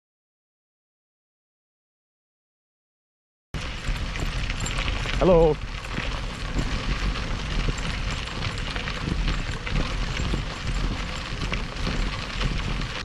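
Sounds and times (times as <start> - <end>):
rolling road noise: 3.6 - 13.0
wind buffeting microphone: 3.6 - 13.0.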